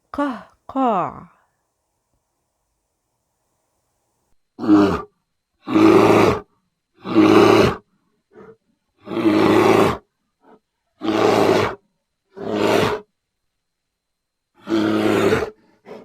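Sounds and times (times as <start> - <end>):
bear growling: 4.6 - 5.1, 5.7 - 6.4, 7.0 - 10.0, 12.4 - 13.0, 14.6 - 16.0.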